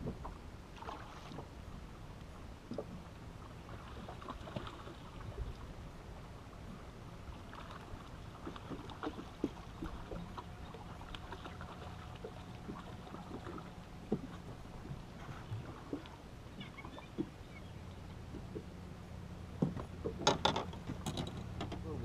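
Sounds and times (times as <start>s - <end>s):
water lapping against boat hull: 0.0s - 22.0s
clicks and knocks on boat: 8.4s - 11.6s, 12.2s - 18.7s, 19.6s - 22.0s.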